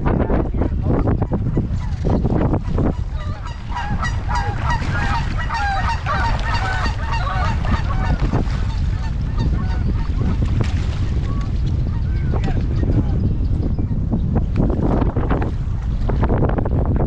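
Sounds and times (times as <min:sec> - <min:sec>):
wind rumble on microphone: 0:00.0 - 0:17.0
geese honking: 0:02.6 - 0:10.4.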